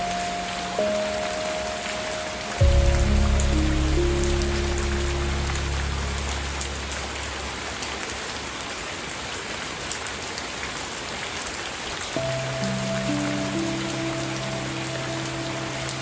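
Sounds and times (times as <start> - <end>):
soft musical pad: 0.0 - 8.0, 12.2 - 16.0
steady rain falling: 0.0 - 16.0.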